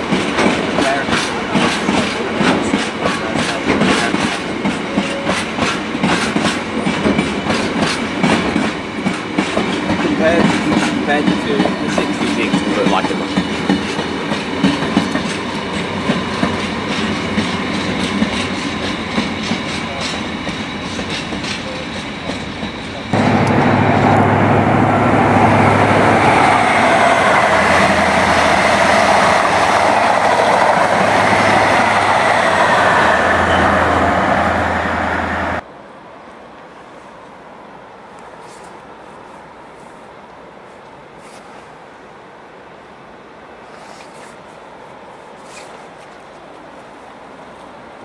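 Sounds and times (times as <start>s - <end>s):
wheels clacking over rail joints: 0.0s - 23.6s
freight train rolling past: 0.0s - 35.7s
train rumble with low hum: 0.0s - 48.0s.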